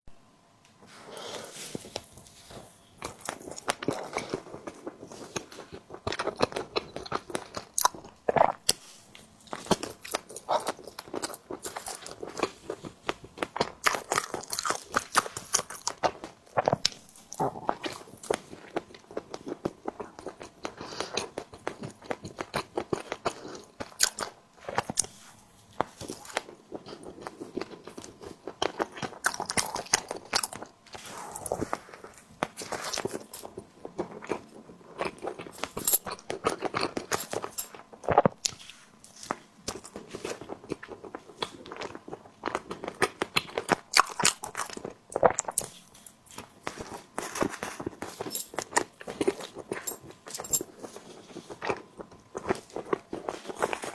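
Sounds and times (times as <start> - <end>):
person biting and chewing: 9.5 - 25.2, 26.0 - 37.5.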